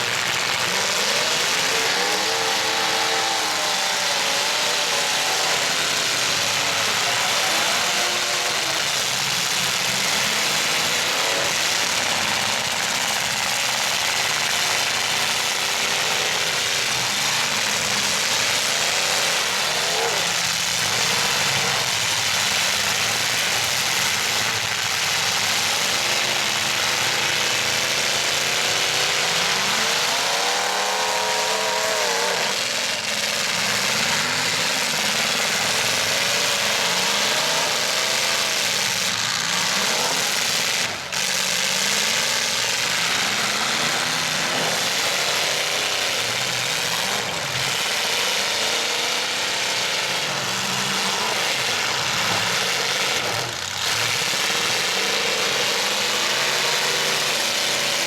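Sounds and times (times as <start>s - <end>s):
truck engines revving: 0.0s - 58.0s.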